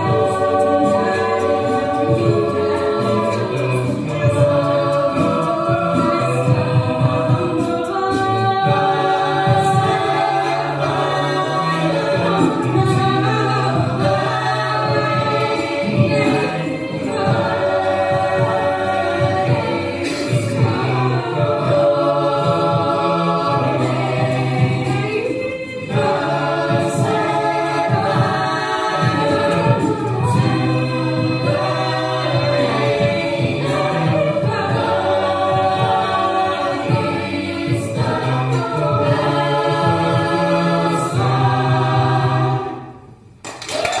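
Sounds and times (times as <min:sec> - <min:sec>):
choir singing: 0:00.0 - 0:43.4.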